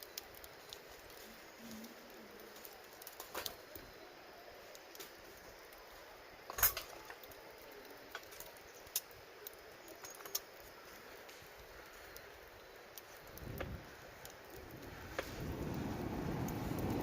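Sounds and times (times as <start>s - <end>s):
campfire crackling and popping: 0.0s - 17.0s
faint steady hiss: 0.0s - 17.0s.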